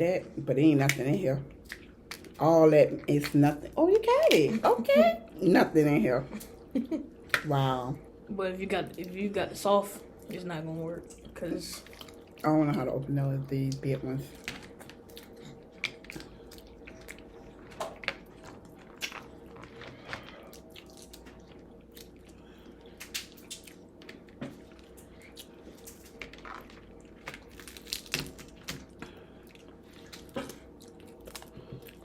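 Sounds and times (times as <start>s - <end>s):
faint steady hum: 0.0s - 32.0s
chewing and wet squishing: 0.8s - 4.7s, 11.0s - 13.0s, 13.6s - 32.0s
crab shell cracking: 27.2s - 29.0s.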